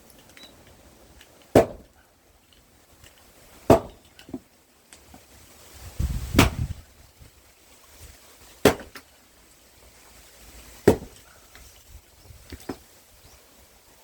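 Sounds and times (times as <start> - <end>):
axe striking firewood: 1.4 - 2.0, 3.5 - 5.3, 6.2 - 6.8, 8.4 - 9.1, 10.8 - 11.6, 12.5 - 12.9.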